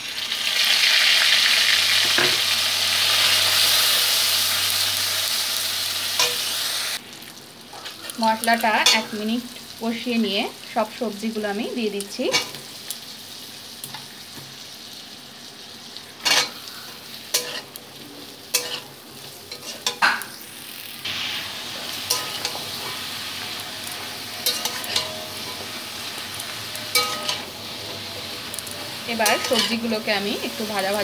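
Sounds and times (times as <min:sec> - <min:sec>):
vegetables sizzling in oil: 0:00.0 - 0:31.0
metal spatula scraping a pan: 0:21.8 - 0:25.8, 0:26.7 - 0:31.0.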